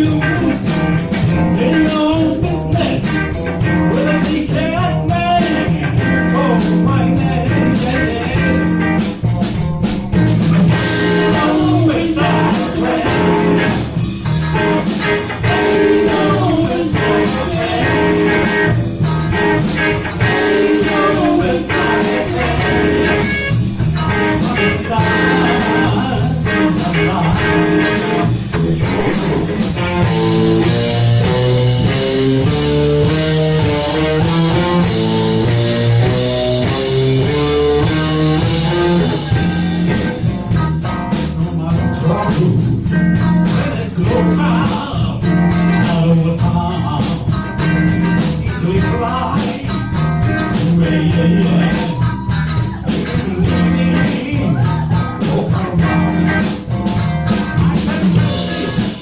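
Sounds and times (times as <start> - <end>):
blues rock band playing: 0.0 - 59.0
electric guitar lead: 0.0 - 59.0.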